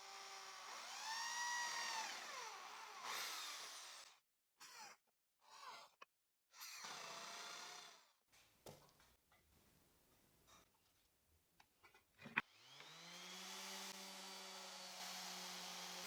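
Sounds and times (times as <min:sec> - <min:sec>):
electric drill whining: 0:00.0 - 0:04.0, 0:12.4 - 0:16.0.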